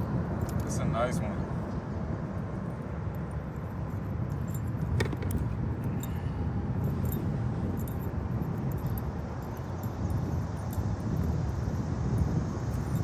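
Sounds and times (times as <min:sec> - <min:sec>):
wind on microphone: 0:00.0 - 0:13.0
light clicking and jingling: 0:00.3 - 0:01.8, 0:02.7 - 0:13.0.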